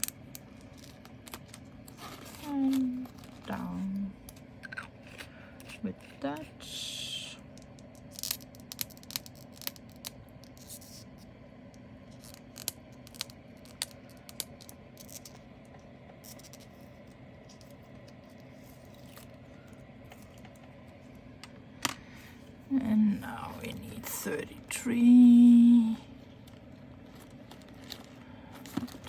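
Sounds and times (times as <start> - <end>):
plastic bags rustling: 0.0 - 4.0, 26.1 - 29.0.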